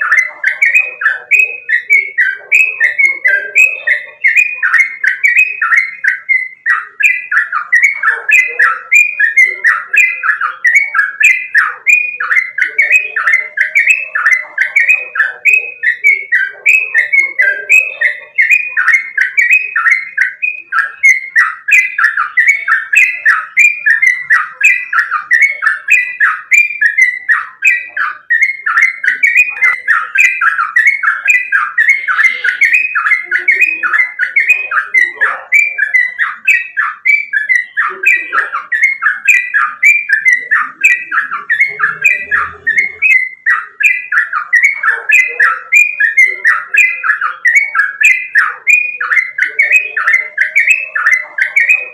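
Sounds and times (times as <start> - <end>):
bird singing rapid falling notes: 0.0 - 51.9.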